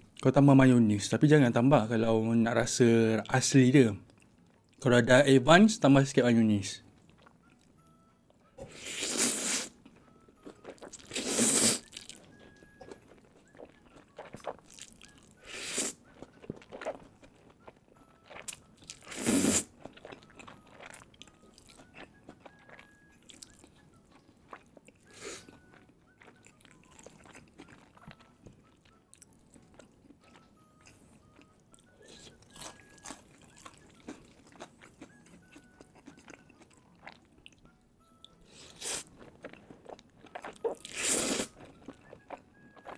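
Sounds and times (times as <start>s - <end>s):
chewing with small clicks: 4.0s - 4.9s, 6.8s - 8.6s, 9.8s - 11.1s, 11.8s - 15.4s, 16.0s - 19.1s, 19.7s - 42.9s.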